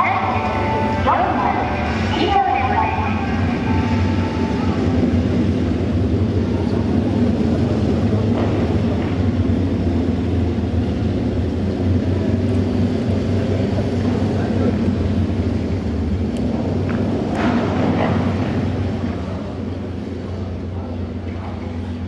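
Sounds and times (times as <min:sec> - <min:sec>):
motorcycle engines rumbling: 0:00.0 - 0:22.0.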